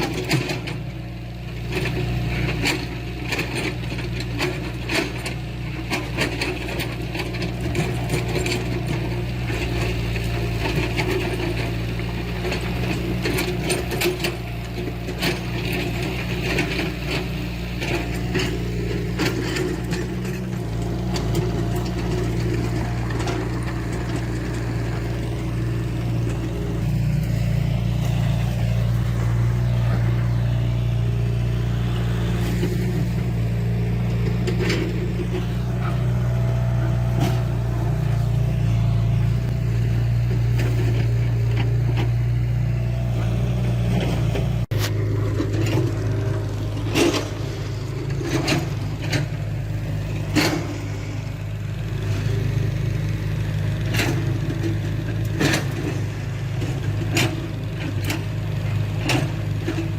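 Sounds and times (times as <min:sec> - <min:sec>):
diesel machinery engine drone: 0:00.0 - 0:59.9.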